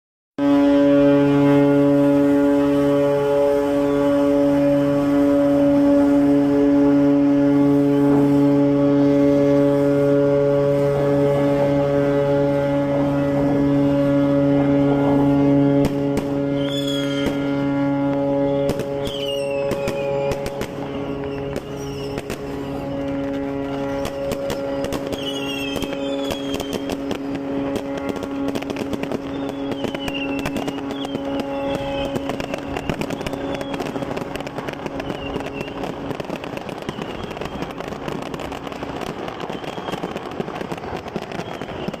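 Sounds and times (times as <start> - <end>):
firecrackers popping: 0.4 - 42.0
ship's horn blast: 0.4 - 42.0
short falling whistles: 16.6 - 17.3.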